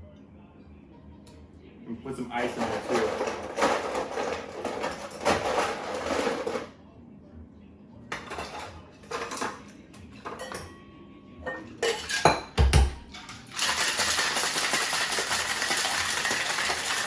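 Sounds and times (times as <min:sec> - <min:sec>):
ice cubes clinking into metal tin: 0:02.4 - 0:06.7, 0:11.8 - 0:17.0
ice rattling in shaker: 0:13.2 - 0:17.0.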